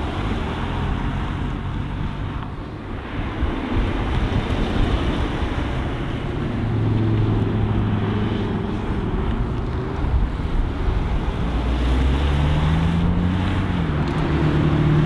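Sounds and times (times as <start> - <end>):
wind noise on microphone: 0.0 - 15.0
car engine passing: 5.0 - 15.0.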